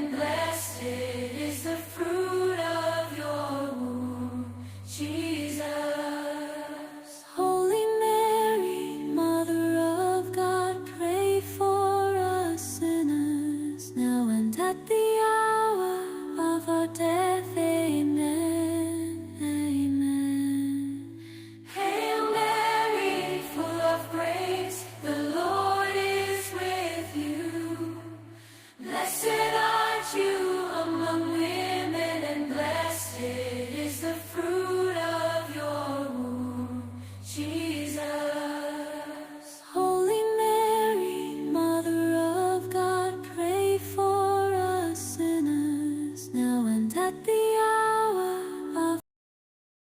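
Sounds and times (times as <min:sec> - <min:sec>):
slow chanted singing: 0:00.0 - 0:11.8, 0:20.0 - 0:42.8.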